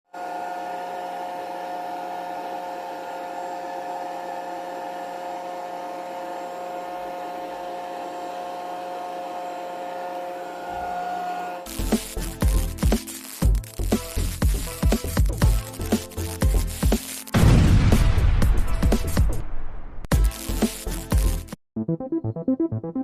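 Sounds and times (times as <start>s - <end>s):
small motor whining: 0.1s - 17.4s.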